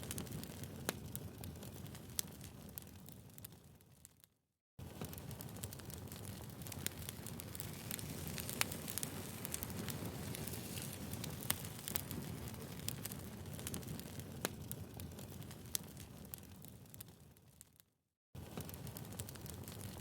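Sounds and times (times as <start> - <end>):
fire pops and snaps: 0.0 - 20.0
low rumble of burning logs: 0.0 - 20.0
wood fire crackling: 0.0 - 20.0.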